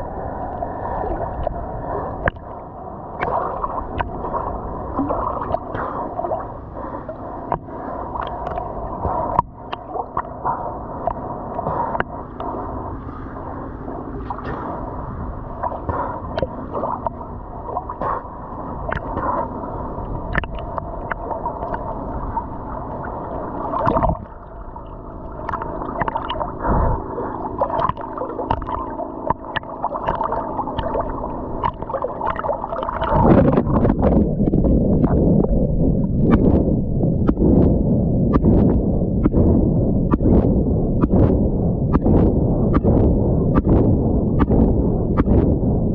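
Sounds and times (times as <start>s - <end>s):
sea water sloshing and gurgling: 0.0s - 45.9s
small water splashes: 3.2s - 6.5s, 20.3s - 35.2s.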